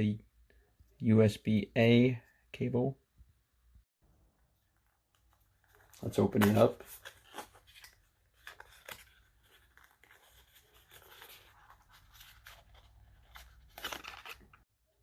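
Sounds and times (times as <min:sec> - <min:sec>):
packaging rustling and crinkling: 0:04.7 - 0:14.6.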